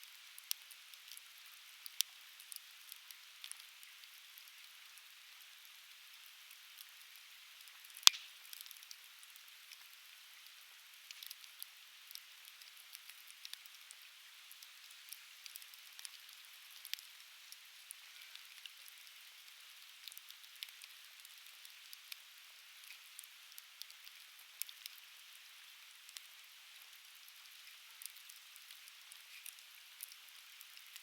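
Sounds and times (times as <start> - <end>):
campfire crackling and popping: 7.6 - 17.1, 19.8 - 22.2, 22.8 - 25.0, 27.5 - 31.0.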